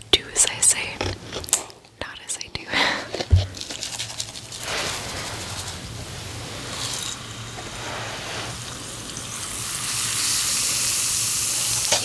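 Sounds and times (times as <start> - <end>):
bath bomb scraped by hand: 3.1 - 9.6
fizzing in water: 3.7 - 12.0.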